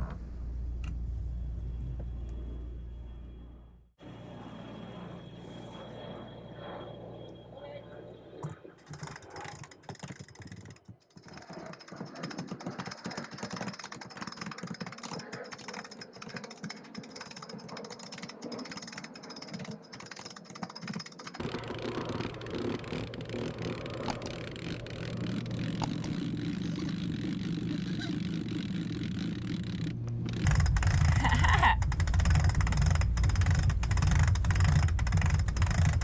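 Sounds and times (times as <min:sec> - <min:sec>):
winch ratchet clicking: 0:09.0 - 0:31.2.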